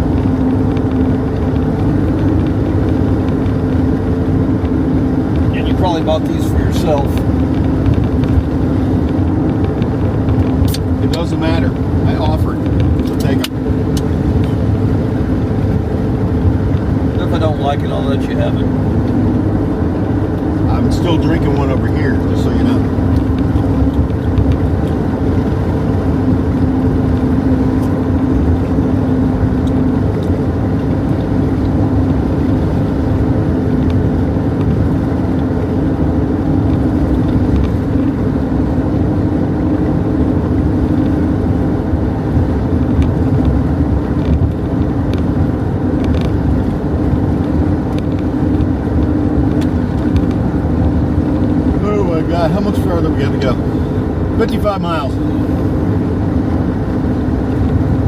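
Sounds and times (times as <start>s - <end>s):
constant low hum: 0.0s - 58.0s
road and engine drone in car: 0.0s - 58.0s.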